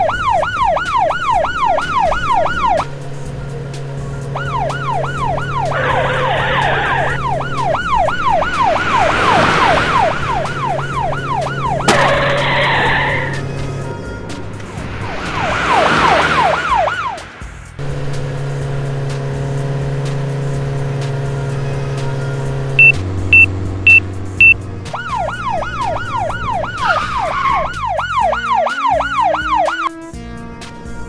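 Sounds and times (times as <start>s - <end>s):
cartoon police siren wailing: 0.0s - 2.9s, 4.2s - 13.6s, 15.1s - 17.2s, 22.8s - 30.0s
short high beeps: 22.8s - 24.6s.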